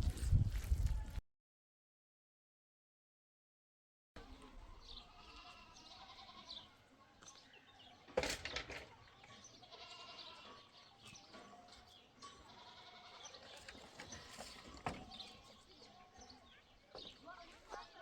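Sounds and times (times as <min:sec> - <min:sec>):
livestock bleating: 0:05.0 - 0:06.7, 0:09.6 - 0:10.7, 0:12.4 - 0:13.4.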